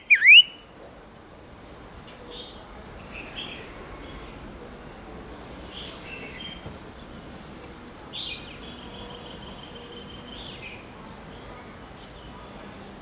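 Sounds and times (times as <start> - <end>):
songbird chirping and whistling: 0.0 - 0.6.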